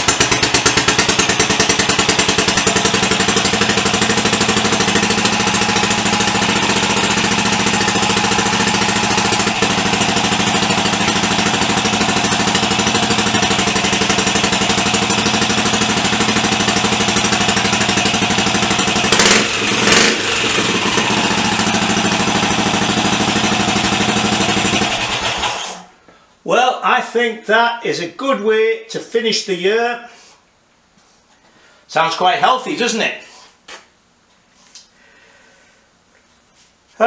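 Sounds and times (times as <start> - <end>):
motorcycle engine idling and revving: 0.0 - 25.8.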